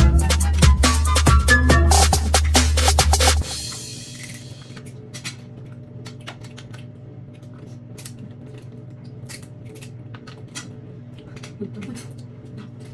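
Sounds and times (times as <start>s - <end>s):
crab shells cracking: 4.2s - 12.9s.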